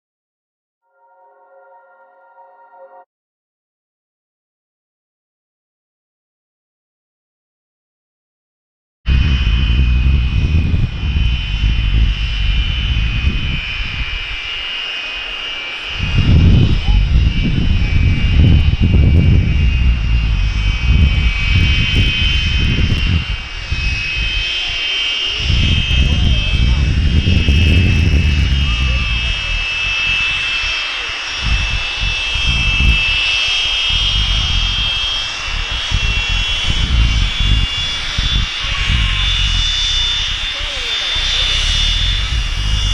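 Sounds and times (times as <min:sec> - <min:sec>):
jet engine low rumble: 0:09.1 - 0:42.9
jet engine whine: 0:09.1 - 0:42.9
wind buffeting microphone: 0:09.1 - 0:42.9.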